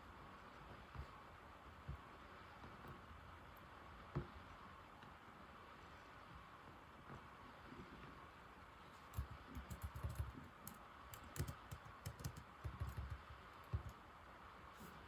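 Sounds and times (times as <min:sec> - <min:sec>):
keyboard key clicks: 0:09.1 - 0:14.0.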